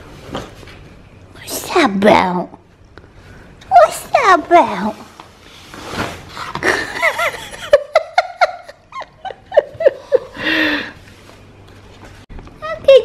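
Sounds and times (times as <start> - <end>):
woman laughing: 6.6 - 10.9.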